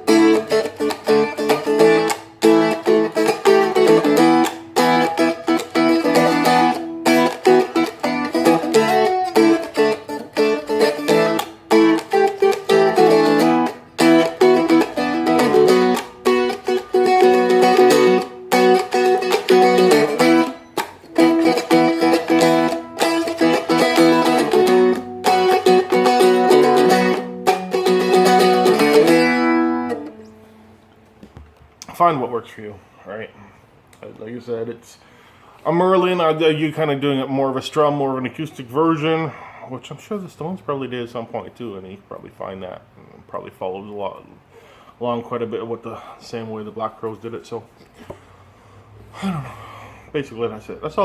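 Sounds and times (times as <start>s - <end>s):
dulcimer strummed in rhythm: 0.0s - 30.2s.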